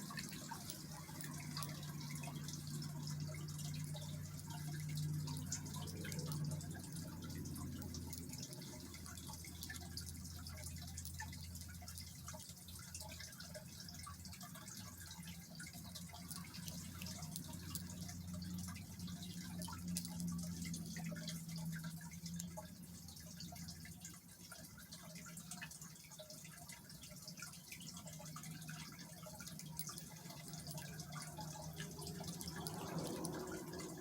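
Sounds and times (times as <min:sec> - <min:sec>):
small irregular clicks: 0:00.0 - 0:34.0.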